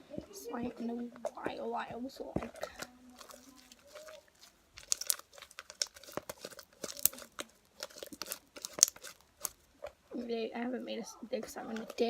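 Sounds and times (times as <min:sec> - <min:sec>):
sticky slime clicks and crackles: 0:02.3 - 0:10.0.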